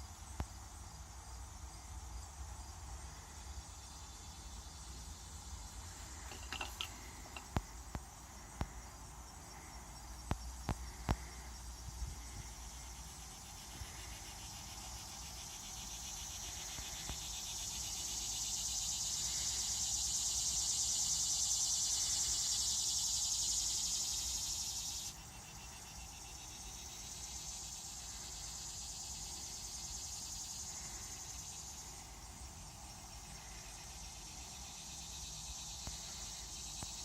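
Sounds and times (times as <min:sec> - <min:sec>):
high-pitched insect chirring: 0:12.1 - 0:37.0.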